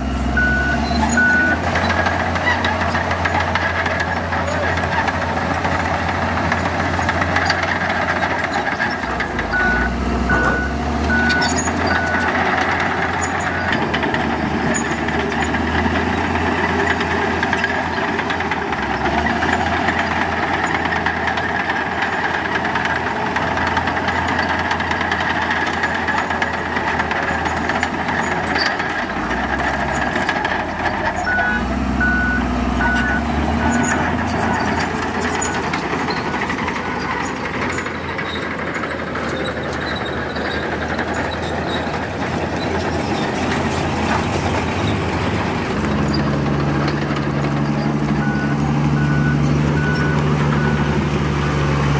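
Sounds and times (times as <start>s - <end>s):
heavy diesel machinery running: 0.0s - 51.9s
reversing alarm beeping: 0.1s - 1.6s, 9.4s - 13.4s, 31.2s - 34.7s, 48.1s - 50.9s.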